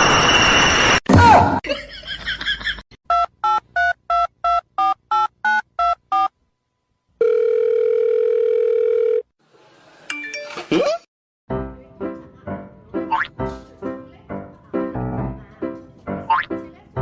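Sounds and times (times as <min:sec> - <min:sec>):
loud noise: 0:00.0 - 0:01.6
telephone ringing tone: 0:07.2 - 0:09.3.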